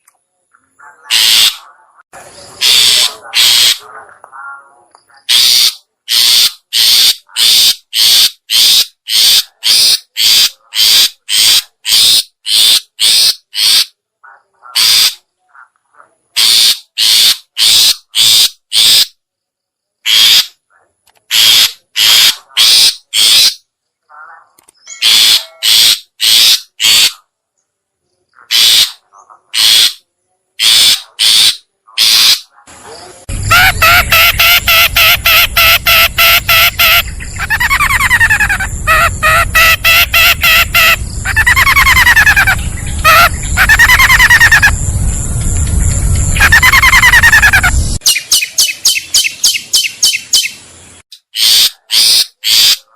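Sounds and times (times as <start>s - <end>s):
shrike harsh rasping calls: 1.0s - 1.6s, 2.6s - 3.9s, 5.2s - 14.0s, 21.3s - 23.6s, 24.9s - 27.2s, 28.4s - 29.0s, 29.6s - 30.0s, 30.6s - 32.5s, 33.3s - 44.8s, 46.3s - 52.9s.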